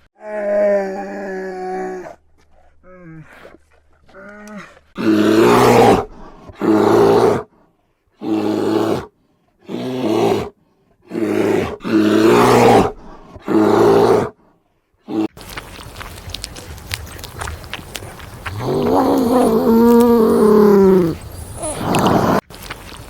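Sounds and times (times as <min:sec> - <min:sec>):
big cat roaring: 0:17.8 - 0:22.4.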